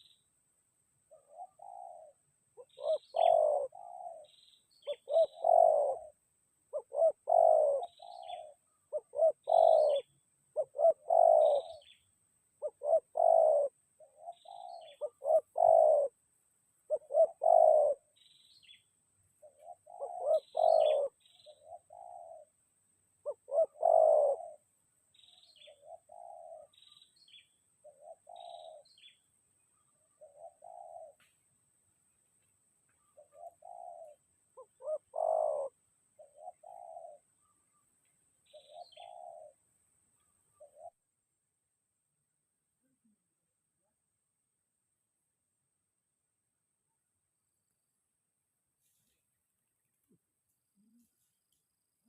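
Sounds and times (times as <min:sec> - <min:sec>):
small birds chirping: 0:00.0 - 0:00.4, 0:01.0 - 0:41.3
doves cooing: 0:01.1 - 0:16.2, 0:16.9 - 0:18.8, 0:19.4 - 0:22.6, 0:23.2 - 0:29.2, 0:29.8 - 0:31.2, 0:33.0 - 0:37.8, 0:38.5 - 0:39.6, 0:40.5 - 0:41.0, 0:50.7 - 0:51.3.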